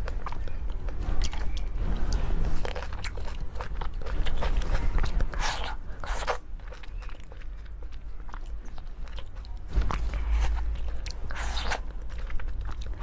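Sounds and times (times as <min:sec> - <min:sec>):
crunchy bites and chewing: 0:00.0 - 0:13.0.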